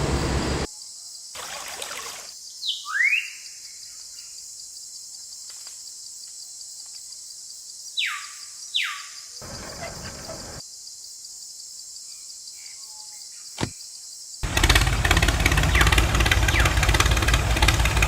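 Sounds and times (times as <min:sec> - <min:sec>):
small motor buzzing rattle: 0:14.4 - 0:18.0.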